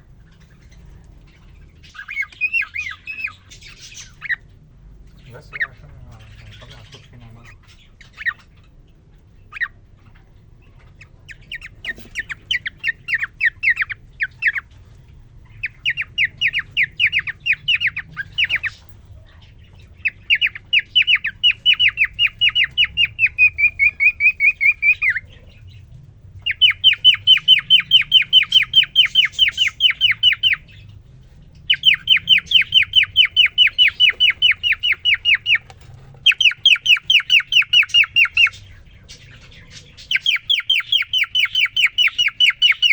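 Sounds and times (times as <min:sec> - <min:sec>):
cockatiel chirping: 0:00.2 - 0:42.9.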